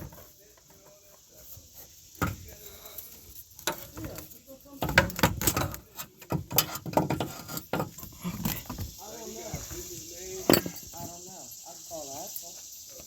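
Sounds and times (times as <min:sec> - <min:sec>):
metal hand tools clicking and knocking: 0:10.4 - 0:11.2.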